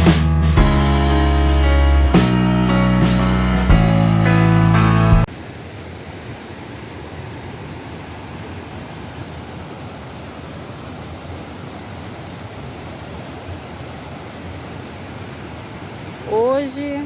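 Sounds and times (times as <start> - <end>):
waterfall and river rapids rushing: 5.3 - 17.0.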